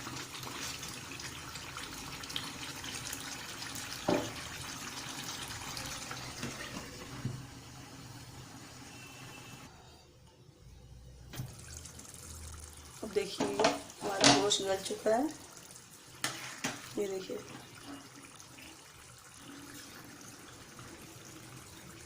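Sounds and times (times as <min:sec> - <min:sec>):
tap water running into bowl: 0:00.0 - 0:07.6, 0:11.3 - 0:22.0
knock: 0:04.1 - 0:04.4.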